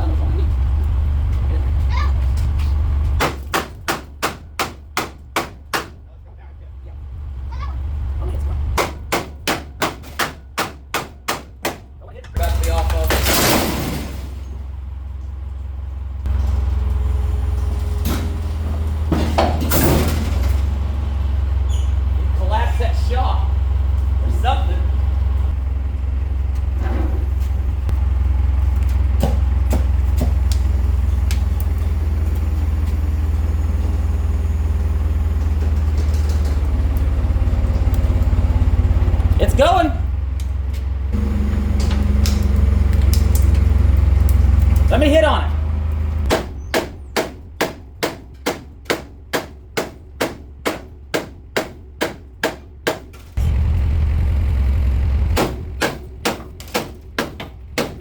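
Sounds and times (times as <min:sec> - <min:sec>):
engine idling: 0:00.0 - 0:58.0
sharp knocks: 0:03.2 - 0:06.0, 0:08.8 - 0:11.9.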